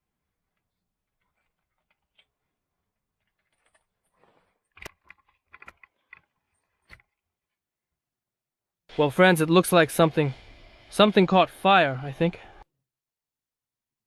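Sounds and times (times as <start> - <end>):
soft rustle: 0.1 - 4.8.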